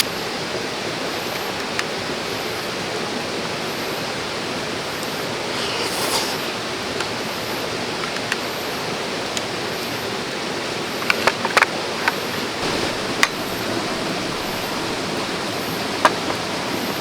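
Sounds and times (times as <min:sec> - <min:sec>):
stream of running water: 0:05.2 - 0:07.3, 0:11.8 - 0:17.0.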